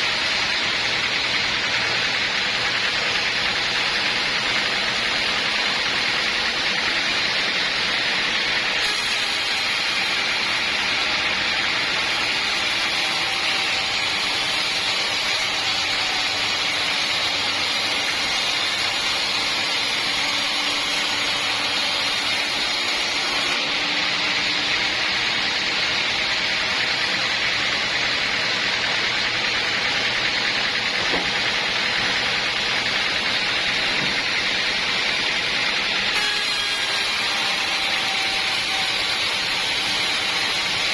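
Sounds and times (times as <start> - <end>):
sawmill saw cutting log: 0.0 - 40.9.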